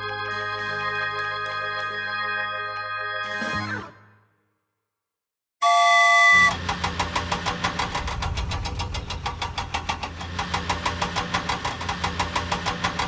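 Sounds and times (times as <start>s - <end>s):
cartoon engine hum with knocks: 5.6s - 13.0s.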